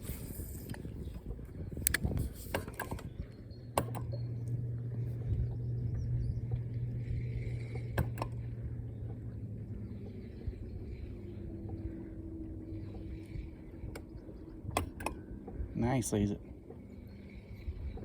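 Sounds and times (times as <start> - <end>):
electric trolling motor humming: 0.0 - 18.0
motor switch click: 1.8 - 3.1, 3.7 - 4.6.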